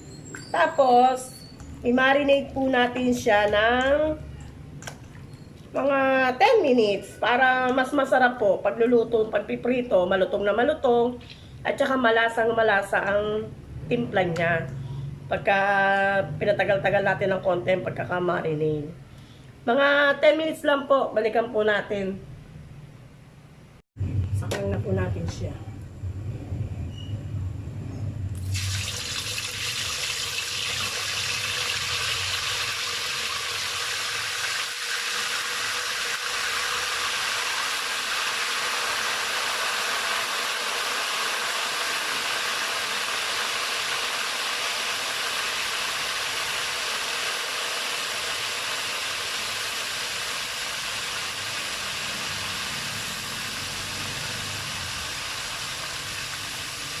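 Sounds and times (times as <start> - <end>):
chicken sizzling in hot oil: 28.4 - 57.0.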